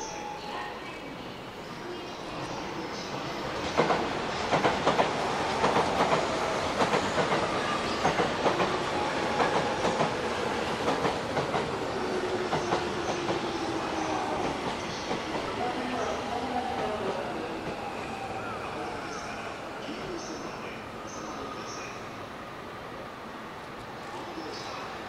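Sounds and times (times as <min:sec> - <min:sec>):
train rolling noise: 0:00.0 - 0:25.0.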